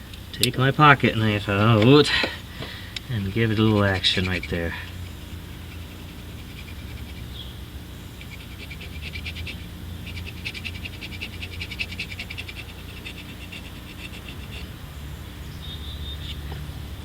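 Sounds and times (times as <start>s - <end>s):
steady low hum: 0.0s - 17.0s
knife blade scraping metal: 3.2s - 7.2s.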